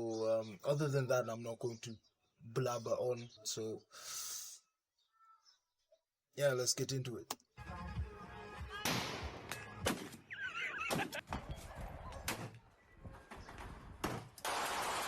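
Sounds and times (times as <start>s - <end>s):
gunshots: 8.8s - 10.2s.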